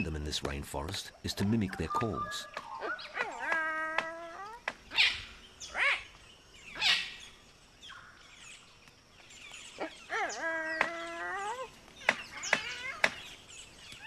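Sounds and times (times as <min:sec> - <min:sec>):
bird chirps: 0:00.0 - 0:14.0
cockatoo screeching: 0:02.7 - 0:06.0.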